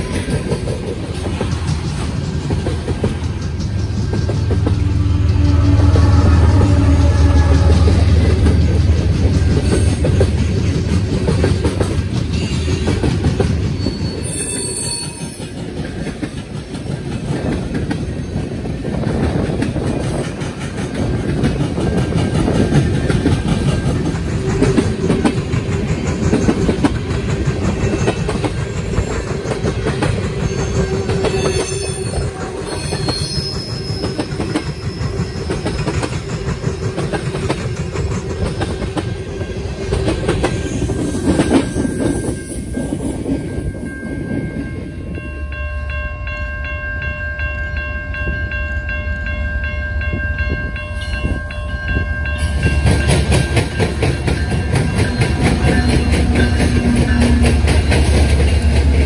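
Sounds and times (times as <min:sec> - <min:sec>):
freight train wheels rumbling: 0:00.0 - 0:59.0
high wheel squeals: 0:13.7 - 0:15.6, 0:30.4 - 0:36.2, 0:54.3 - 0:58.6.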